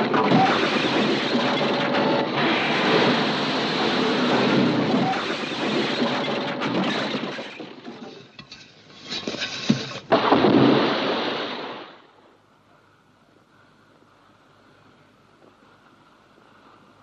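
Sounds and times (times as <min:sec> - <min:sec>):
low hiss: 0:09.4 - 0:17.0.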